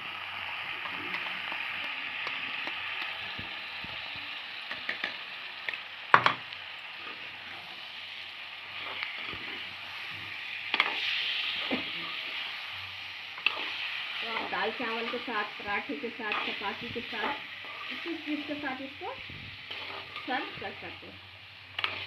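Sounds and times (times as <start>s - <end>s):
potatoes sizzling in oil: 0.0s - 22.0s
metal spoon scraping a pan: 10.6s - 12.6s, 13.4s - 22.0s.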